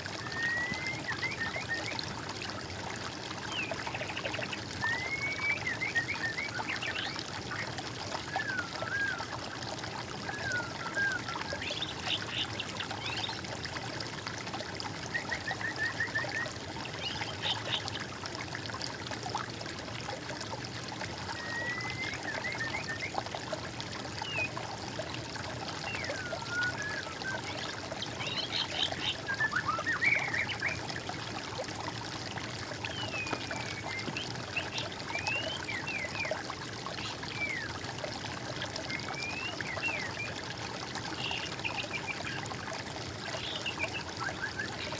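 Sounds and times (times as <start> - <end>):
running water trickling: 0.0 - 44.9
small songbirds singing: 25.9 - 30.8, 32.9 - 36.4, 38.9 - 40.4, 43.2 - 44.9.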